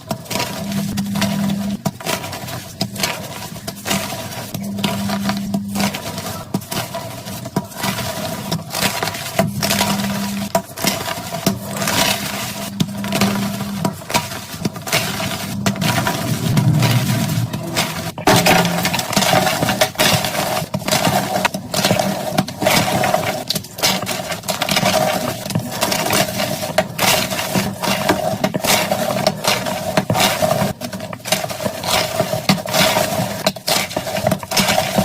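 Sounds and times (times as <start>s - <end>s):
steady hum: 0.3s - 1.8s, 2.9s - 6.5s, 11.6s - 14.2s, 14.8s - 21.5s.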